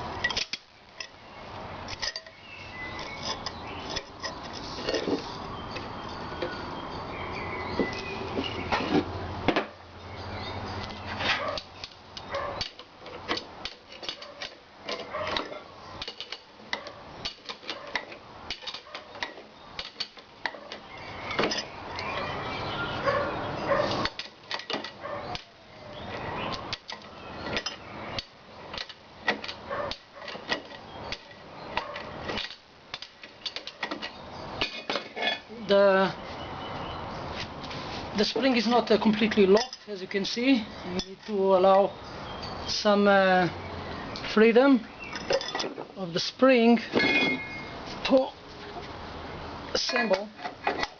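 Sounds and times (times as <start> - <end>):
metallic clicks and knocks: 10.8 - 22.3, 24.0 - 25.5, 26.5 - 35.4.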